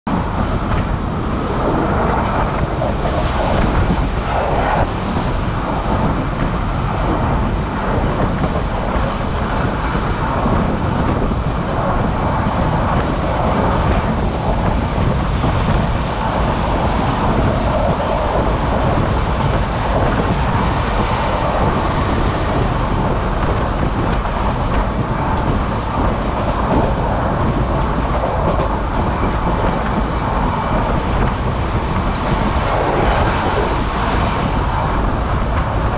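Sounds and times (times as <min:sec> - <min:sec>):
train wheels rumbling on rails: 0:00.1 - 0:35.9.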